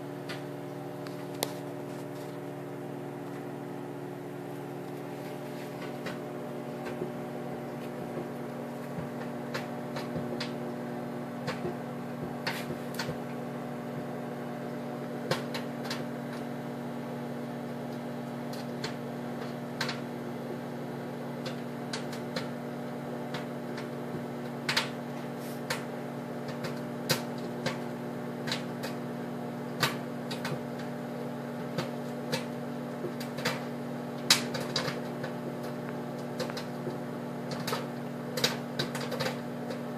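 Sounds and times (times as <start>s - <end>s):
microwave oven humming: 0.0s - 39.9s
popcorn kernels popping: 21.4s - 25.0s, 25.7s - 29.0s, 29.7s - 31.0s, 31.6s - 39.9s.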